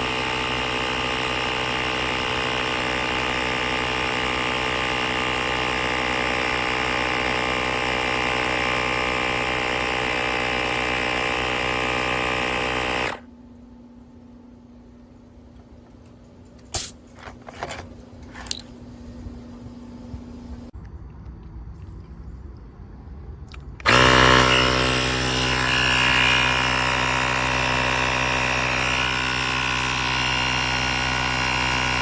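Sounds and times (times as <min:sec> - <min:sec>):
electric air compressor running: 0:00.0 - 0:15.8, 0:16.7 - 0:17.1, 0:23.8 - 0:32.0.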